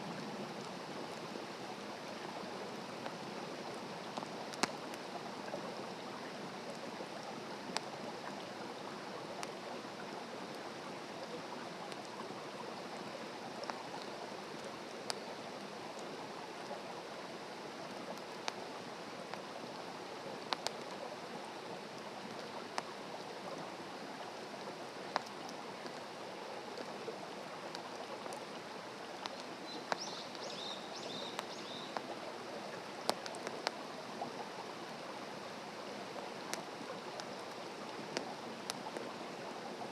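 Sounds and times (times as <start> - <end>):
campfire crackling: 0.1 - 5.6, 11.6 - 34.7
bird chirping: 29.7 - 32.0.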